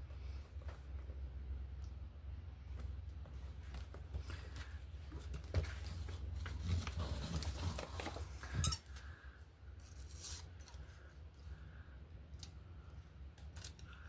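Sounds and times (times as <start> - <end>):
paper rustling: 2.7 - 9.1, 9.8 - 11.1.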